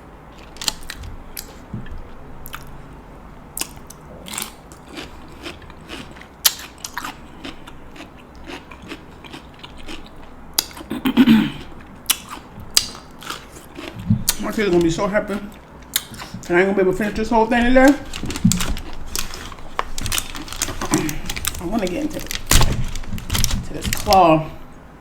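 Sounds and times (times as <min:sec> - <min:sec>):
chewing: 0:03.6 - 0:24.2
crab shell cracking: 0:06.0 - 0:07.6, 0:11.7 - 0:16.6, 0:17.8 - 0:24.3.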